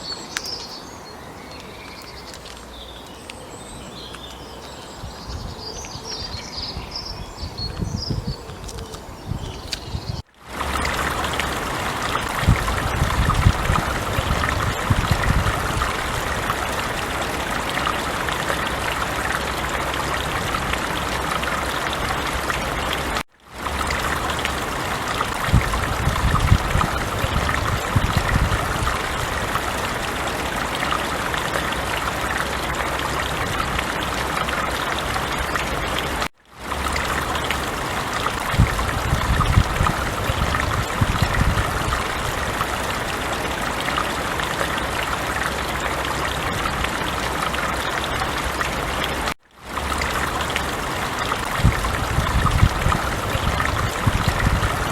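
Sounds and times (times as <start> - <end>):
small birds chirping: 0.0 - 16.7
stream rushing and babbling: 0.0 - 54.9.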